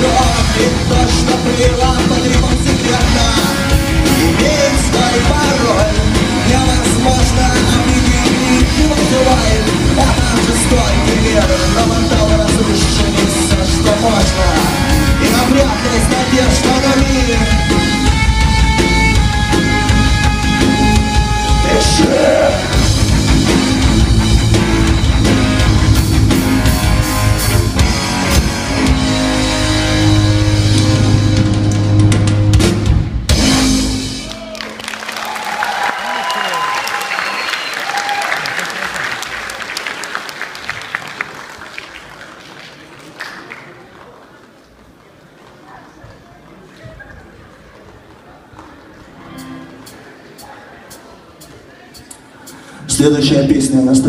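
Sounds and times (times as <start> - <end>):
live rock band: 0.0 - 39.8.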